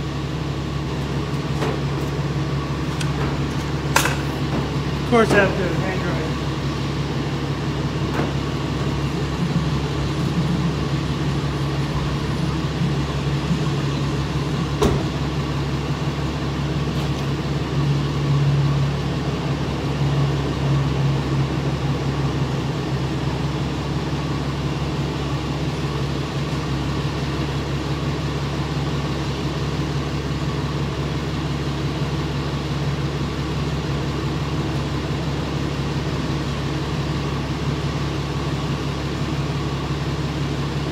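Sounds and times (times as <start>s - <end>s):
vehicle engine droning: 0.0s - 40.9s.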